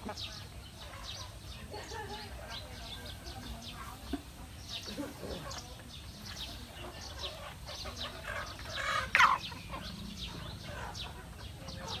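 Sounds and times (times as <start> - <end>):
chickens chirping: 0.0 - 12.0
chicken squawk: 7.1 - 9.9.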